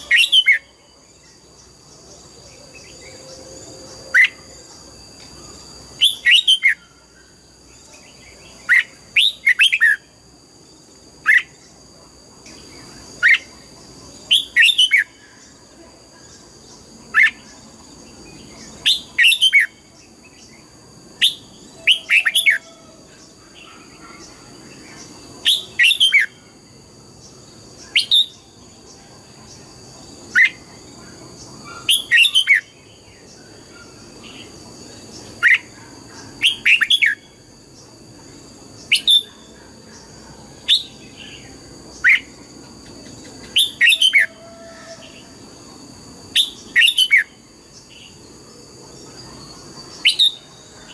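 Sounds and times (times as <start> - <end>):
bird singing whistled notes: 0.0 - 0.8, 6.0 - 7.1, 14.3 - 15.4, 18.4 - 20.5, 25.0 - 26.4, 27.8 - 28.5, 31.7 - 33.4, 49.9 - 50.9.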